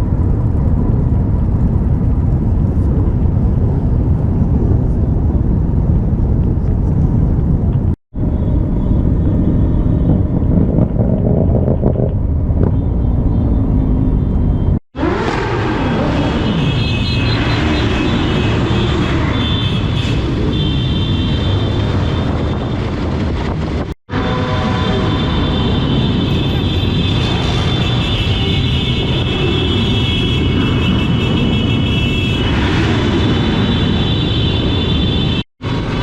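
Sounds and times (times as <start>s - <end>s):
group of motorcycle engines revving: 14.4s - 23.8s.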